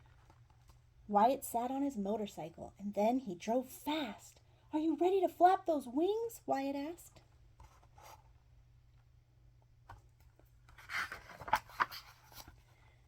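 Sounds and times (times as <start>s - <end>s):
page turning: 10.7s - 12.6s.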